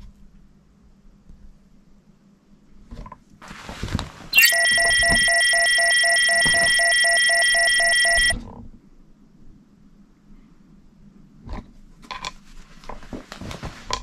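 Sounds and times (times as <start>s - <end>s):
pulsing electronic alarm beep: 4.4s - 8.4s.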